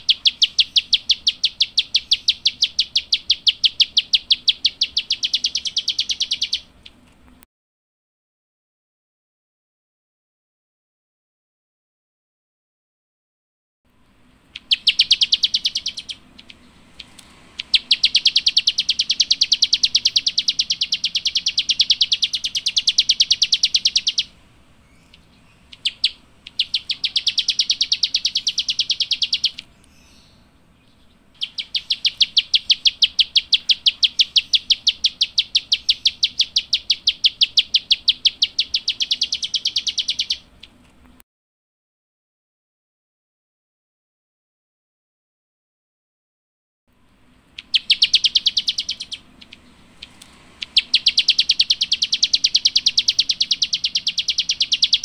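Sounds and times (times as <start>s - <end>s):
songbird clicking call: 0.0s - 7.0s, 14.5s - 24.3s, 25.0s - 30.3s, 31.4s - 40.8s, 47.5s - 55.0s.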